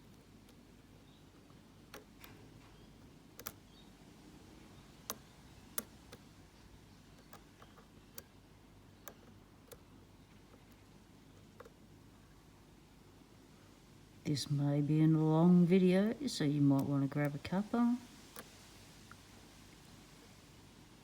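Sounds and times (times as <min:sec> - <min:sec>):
lock pick clicking in padlock: 0:01.9 - 0:03.6.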